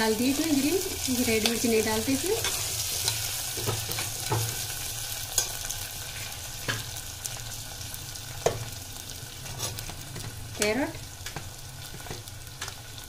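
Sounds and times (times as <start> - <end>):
vegetables sizzling in oil: 0.0 - 13.0
metal spatula scraping pot: 9.4 - 9.9.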